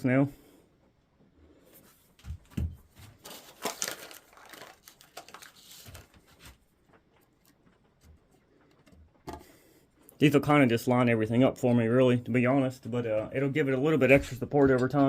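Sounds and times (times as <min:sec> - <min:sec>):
crackly rustling and scraping: 0:01.2 - 0:11.0.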